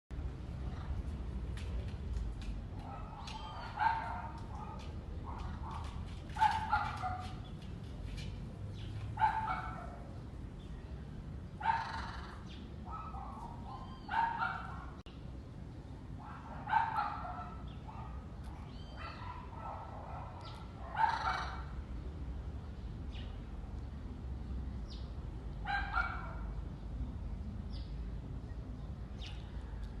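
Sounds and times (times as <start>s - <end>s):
parrot harsh calls: 11.7s - 12.4s.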